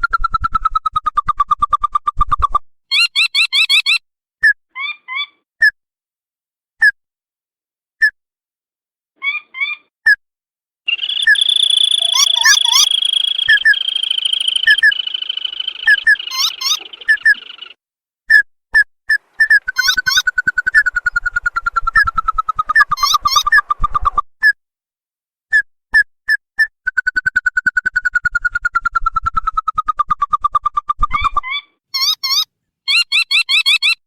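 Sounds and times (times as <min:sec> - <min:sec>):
crake rattling trill: 0:10.9 - 0:17.7
crake sharp calls: 0:10.9 - 0:17.8, 0:19.3 - 0:23.7.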